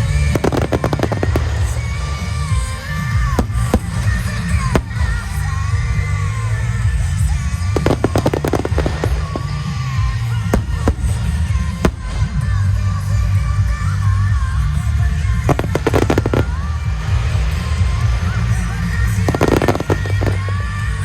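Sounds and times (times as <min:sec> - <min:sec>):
fireworks booming: 0:00.0 - 0:21.0
fireworks crackling: 0:00.0 - 0:21.0
fireworks sharp cracks: 0:00.0 - 0:21.0
music with sung melody: 0:00.0 - 0:21.0.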